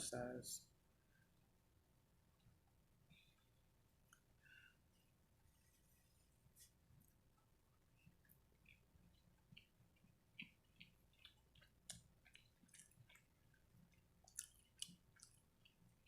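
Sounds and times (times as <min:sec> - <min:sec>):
person chewing with mouth smacks: 0:06.6 - 0:16.0.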